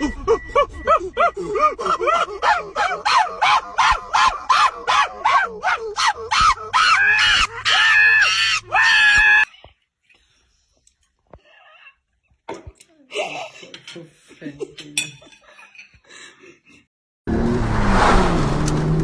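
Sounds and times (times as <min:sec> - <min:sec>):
dog yapping: 0:02.4 - 0:09.4.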